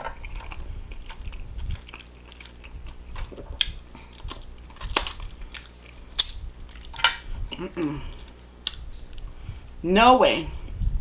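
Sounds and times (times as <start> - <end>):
chewing and lip-smacking: 0.1 - 9.8
sharp mouth clicks: 6.2 - 6.4.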